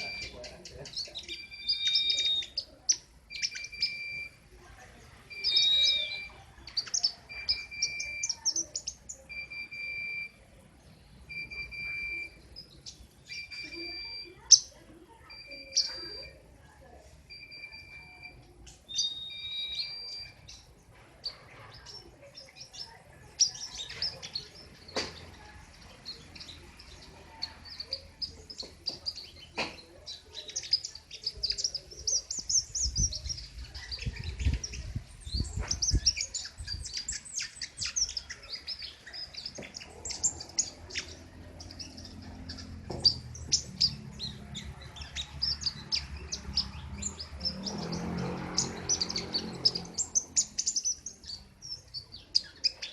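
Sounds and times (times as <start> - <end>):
songbird singing rapid trills: 0.0 - 52.9.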